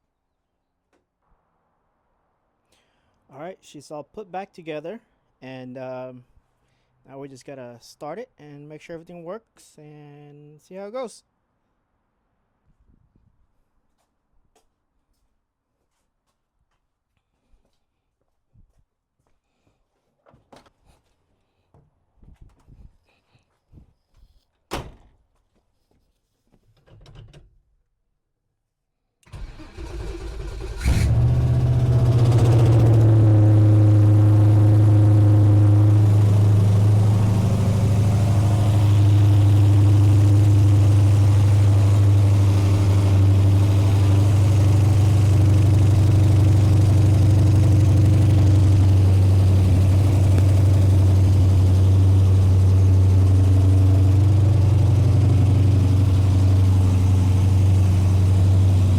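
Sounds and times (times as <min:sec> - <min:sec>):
starter motor cranking: 0:29.3 - 0:58.9
engine idling: 0:29.4 - 0:58.9.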